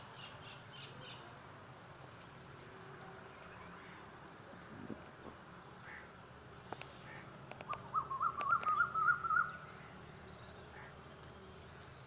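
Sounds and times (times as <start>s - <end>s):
sharp bird clicks: 6.7s - 9.8s
bird warbling call: 7.0s - 11.0s.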